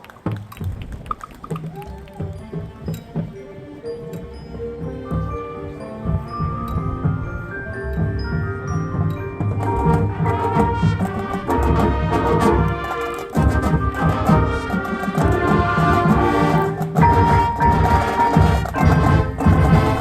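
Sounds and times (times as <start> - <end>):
brass and woodwind chords: 2.2 - 20.0
marching drum beat: 6.0 - 20.0.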